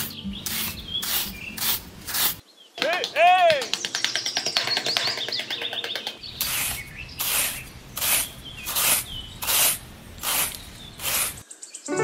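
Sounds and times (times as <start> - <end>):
metal trowel scraping sand: 0.0 - 2.4, 6.4 - 11.4.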